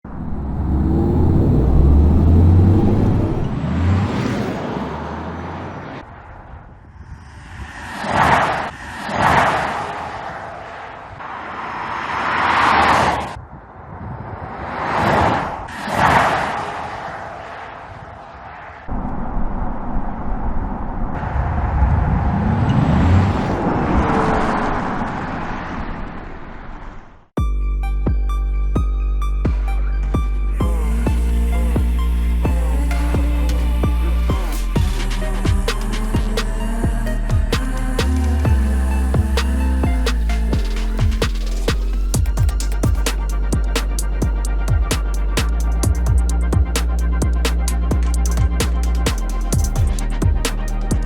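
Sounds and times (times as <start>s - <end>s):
electric car driving by: 0.0s - 13.4s, 18.8s - 27.0s
car tyre and road noise: 0.0s - 27.3s, 31.0s - 51.0s.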